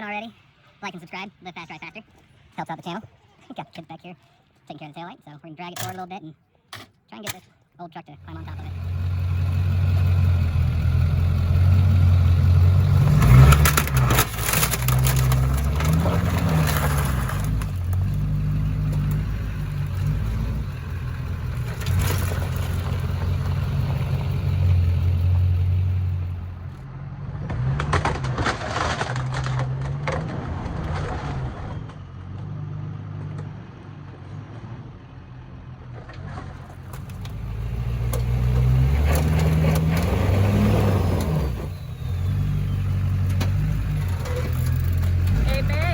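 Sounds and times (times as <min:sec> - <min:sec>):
diesel engine revving: 0:08.0 - 0:45.9.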